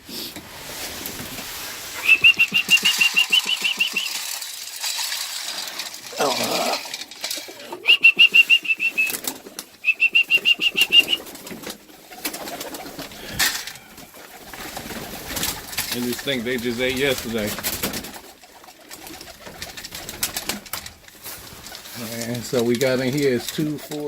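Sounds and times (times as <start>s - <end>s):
wings flapping: 0.6s - 24.0s
rapid high-pitched peeps: 2.0s - 4.3s, 7.8s - 9.2s, 9.8s - 11.3s.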